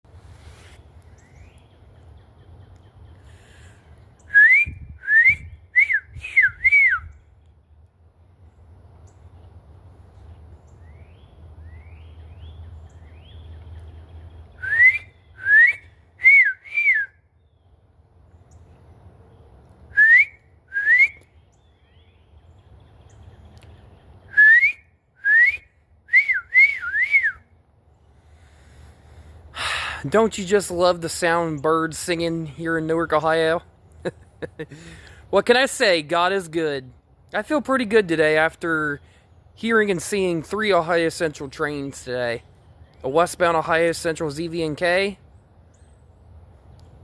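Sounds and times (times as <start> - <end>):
person whistling bird song: 4.2 - 7.3, 14.5 - 17.3, 19.9 - 21.4, 24.3 - 27.6.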